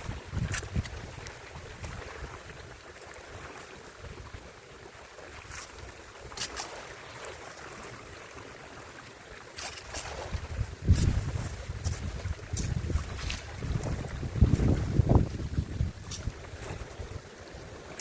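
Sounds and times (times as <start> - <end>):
stream water hiss: 0.0 - 18.0
wind gusting against microphone: 10.2 - 17.2.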